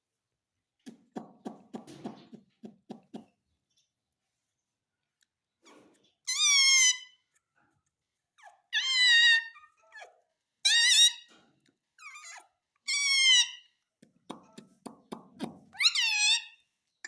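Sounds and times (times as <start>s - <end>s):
parrot high-pitched calls: 6.3s - 7.3s, 8.4s - 11.3s, 12.0s - 13.8s, 15.7s - 16.7s.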